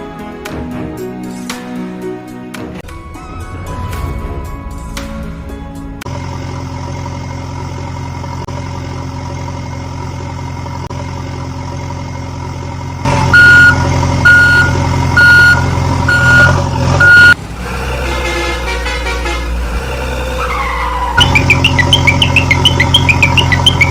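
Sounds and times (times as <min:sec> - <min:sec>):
different engine sound: 0:04.0 - 0:23.9
truck engine running: 0:04.4 - 0:23.9
reversing alarm beeps: 0:13.4 - 0:17.4.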